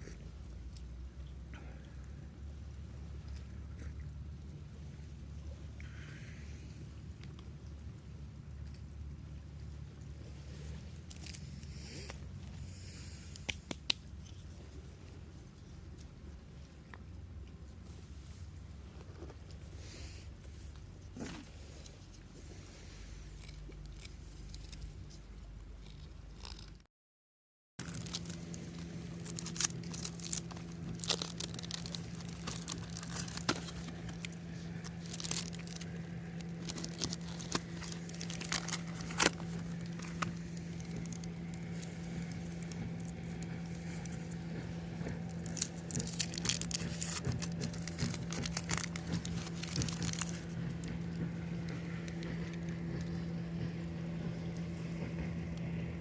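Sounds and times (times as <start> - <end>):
steady low hum: 0.0 - 26.9, 27.8 - 56.0
dry wood crackling and snapping: 10.9 - 12.7, 23.2 - 26.8, 27.8 - 54.8.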